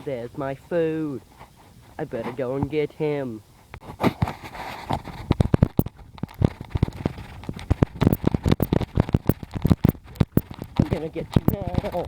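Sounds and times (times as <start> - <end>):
footsteps crunching: 3.7 - 12.0.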